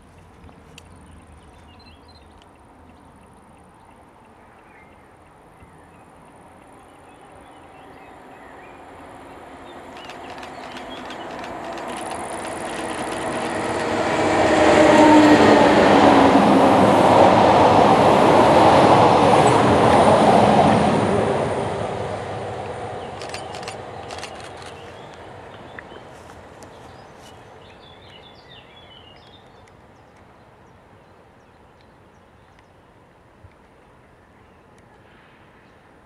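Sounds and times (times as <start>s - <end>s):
train passing: 6.2s - 27.8s.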